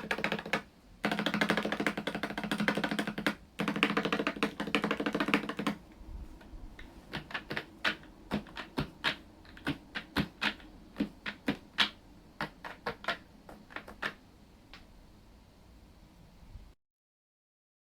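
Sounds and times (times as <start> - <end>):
mechanical keyboard keystrokes: 0.0 - 5.8, 6.8 - 14.2.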